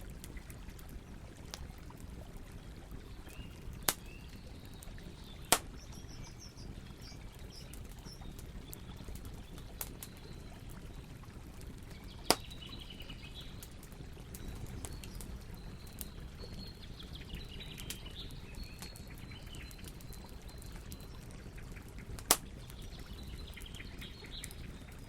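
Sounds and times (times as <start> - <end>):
campfire crackling and popping: 0.0 - 25.0
small birds chirping: 0.1 - 25.0.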